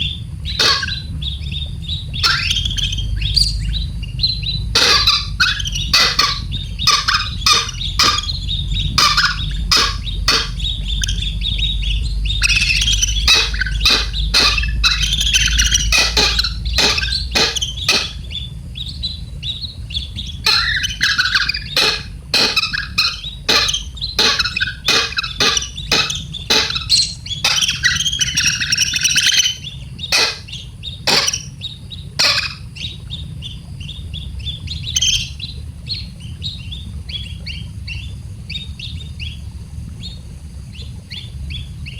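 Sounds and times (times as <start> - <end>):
baby bird chirping: 0.6 - 1.1, 2.1 - 3.6, 4.4 - 11.7, 12.3 - 18.9, 19.9 - 31.6, 32.2 - 32.6
sharp clicks: 12.4 - 18.2, 20.5 - 29.3, 30.1 - 30.5, 31.1 - 31.5.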